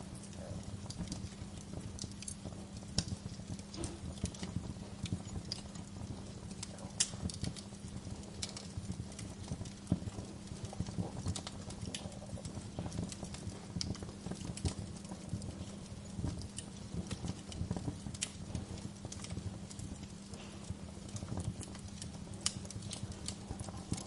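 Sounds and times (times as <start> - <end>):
steady low hum: 0.0 - 24.0
wood fire crackling: 0.0 - 24.0.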